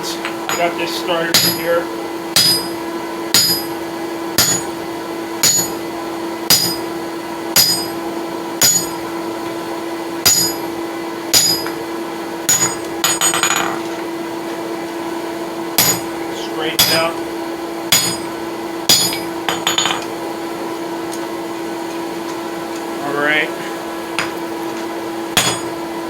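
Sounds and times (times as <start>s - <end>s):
steady hum: 0.0s - 26.0s
hammer striking steel with ring: 1.3s - 1.6s, 2.4s - 3.8s, 4.4s - 4.8s, 5.4s - 5.8s, 6.5s - 6.9s, 7.6s - 8.0s, 8.6s - 9.0s, 10.2s - 10.7s, 11.3s - 11.8s, 12.5s - 13.7s, 15.8s - 16.1s, 16.8s - 17.2s, 17.9s - 18.3s, 18.9s - 20.0s, 25.4s - 25.8s.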